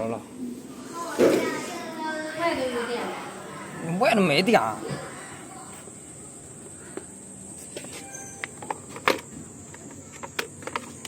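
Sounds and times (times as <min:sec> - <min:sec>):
faint short tone: 0:08.0 - 0:08.5
tools and parts clicking: 0:08.4 - 0:11.0.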